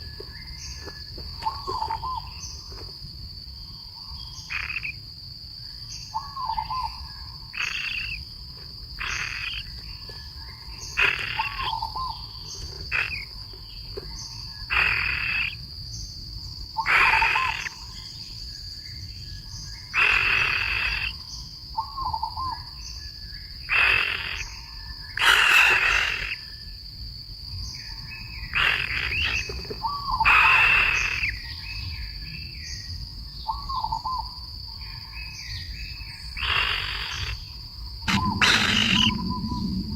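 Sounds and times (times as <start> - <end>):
high insect drone: 0.0 - 39.9
loud animal call: 4.4 - 5.0, 6.3 - 8.2, 9.0 - 9.7, 10.8 - 13.4, 14.7 - 15.6, 16.8 - 17.9, 19.9 - 21.2, 23.7 - 26.5, 28.5 - 31.4, 36.4 - 37.5, 38.1 - 39.9
warbling animal call: 7.5 - 8.2, 9.0 - 9.7, 10.9 - 13.3, 14.7 - 15.6, 16.8 - 17.8, 20.0 - 21.2, 23.7 - 24.5, 25.2 - 26.4, 28.5 - 29.5, 36.4 - 37.4, 38.1 - 39.9.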